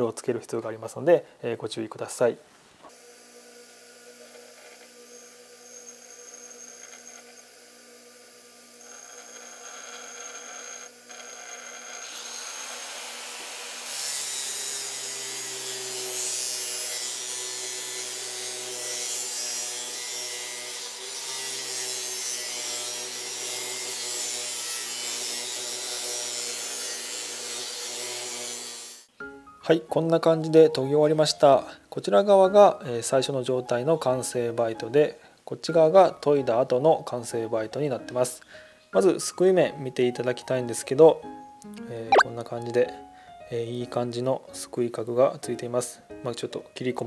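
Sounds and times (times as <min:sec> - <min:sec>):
bench grinder humming: 0:02.9 - 0:28.8.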